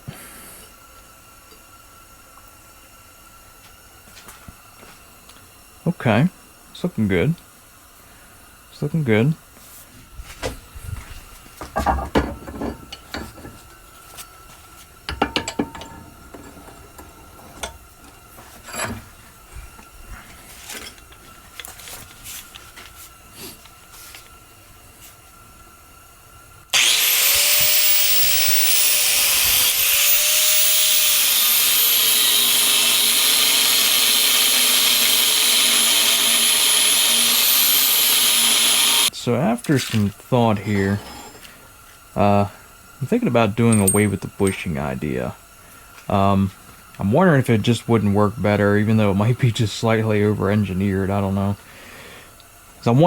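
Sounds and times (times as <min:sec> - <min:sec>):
electric power tool whining: 0:11.8 - 0:13.6, 0:15.1 - 0:19.1, 0:26.7 - 0:39.1
metal pieces clinking: 0:15.1 - 0:19.1, 0:43.7 - 0:44.6.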